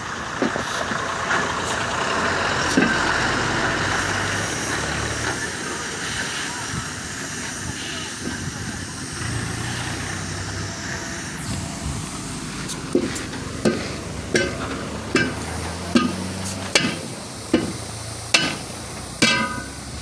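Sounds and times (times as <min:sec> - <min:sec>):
steady low hum: 0:02.6 - 0:20.0
hammer striking metal wheel rim: 0:12.9 - 0:20.0.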